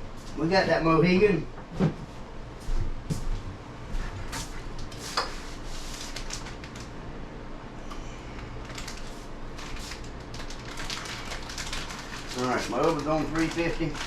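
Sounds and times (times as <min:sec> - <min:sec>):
steady low hum: 0:00.0 - 0:14.0
plastic bag crinkling: 0:04.8 - 0:07.0, 0:08.6 - 0:14.0.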